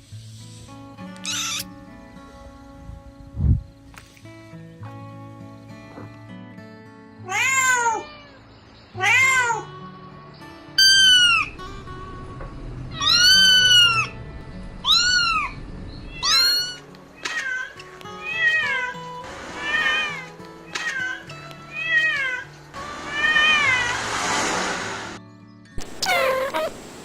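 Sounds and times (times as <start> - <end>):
soft background music: 0.0 - 27.0
kittens meowing: 1.2 - 1.7, 10.8 - 11.6, 12.9 - 14.1, 14.8 - 18.9, 26.0 - 26.8.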